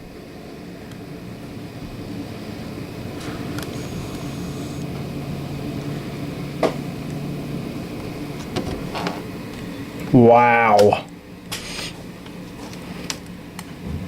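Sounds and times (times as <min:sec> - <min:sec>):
faint low hum: 0:00.0 - 0:09.1.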